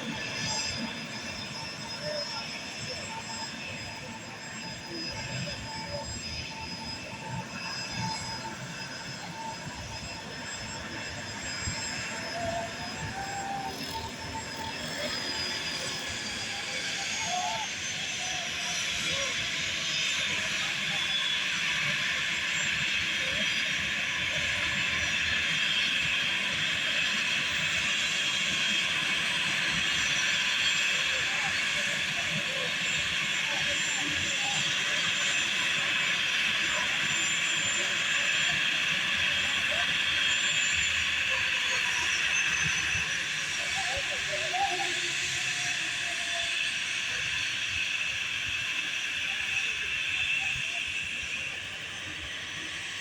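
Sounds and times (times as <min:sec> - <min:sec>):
jet engines whining: 0:00.0 - 0:53.0.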